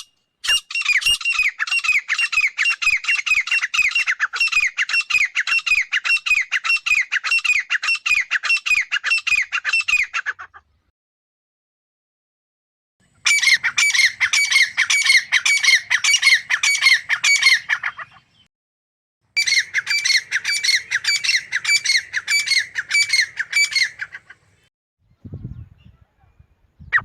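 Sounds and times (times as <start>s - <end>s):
francolin harsh repeated calls: 13.1s - 18.2s, 19.4s - 24.7s.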